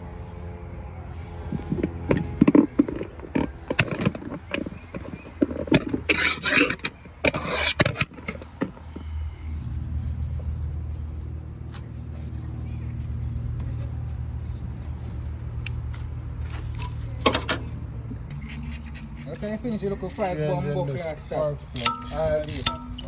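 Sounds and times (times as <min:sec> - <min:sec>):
engine rumble: 0:00.0 - 0:23.0
hand tools clinking on metal: 0:21.6 - 0:23.0.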